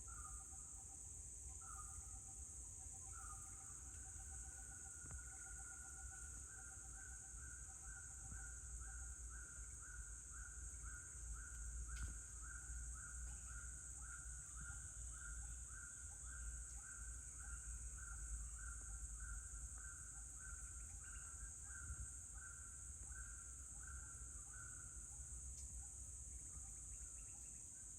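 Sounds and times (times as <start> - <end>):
high-pitched insect chorus: 0.0 - 27.9.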